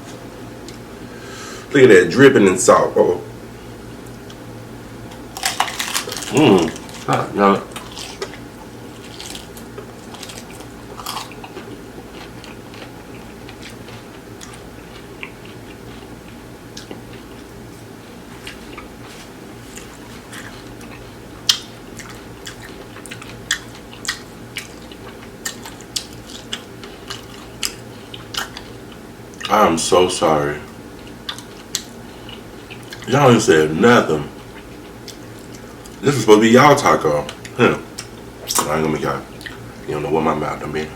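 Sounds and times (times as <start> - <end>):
faint steady hum: 0.0 - 40.9
person chewing food: 5.1 - 29.5, 31.0 - 33.1, 34.3 - 36.0, 39.3 - 39.6.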